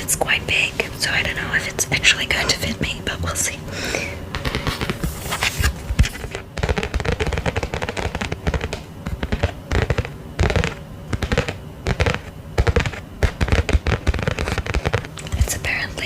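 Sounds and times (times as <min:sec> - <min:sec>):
packaging crinkling: 0:04.3 - 0:15.6.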